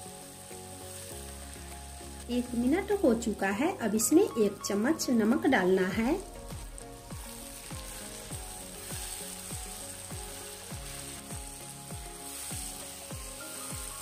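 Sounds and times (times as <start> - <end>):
onions and tomatoes sizzling: 0.0 - 14.0
background music with beat: 4.1 - 14.0
wooden spatula stirring: 6.4 - 14.0.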